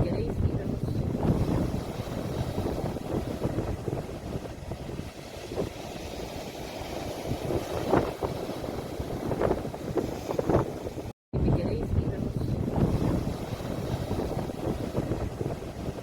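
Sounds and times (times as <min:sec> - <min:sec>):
water splashes: 0:00.0 - 0:11.1, 0:12.2 - 0:16.0
ocean waves breaking: 0:00.0 - 0:16.0.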